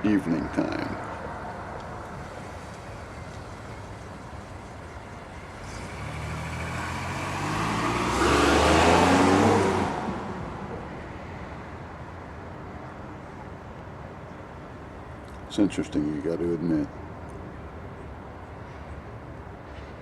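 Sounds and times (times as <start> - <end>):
vehicle driving past: 0.6 - 12.0.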